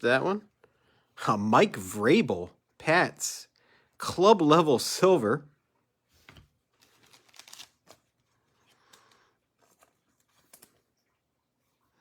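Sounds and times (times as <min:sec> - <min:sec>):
trading cards rustling and clicking: 0:06.2 - 0:11.1.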